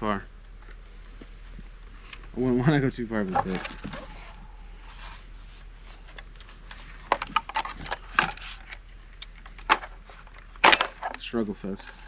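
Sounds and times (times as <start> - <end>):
nailer handling clicks and knocks: 9.4 - 11.2.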